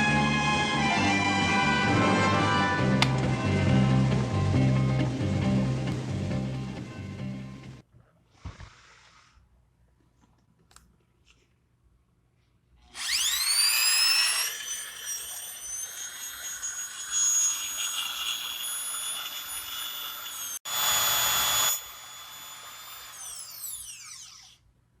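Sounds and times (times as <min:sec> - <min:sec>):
drill motor whining: 0:12.9 - 0:24.6.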